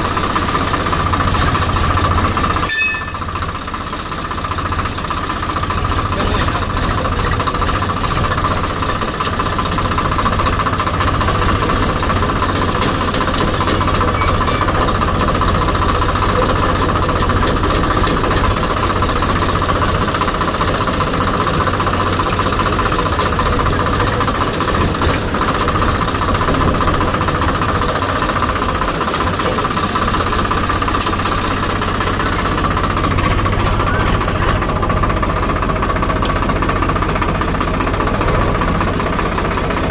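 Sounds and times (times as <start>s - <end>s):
diesel engine knocking clatter: 0.0s - 39.9s.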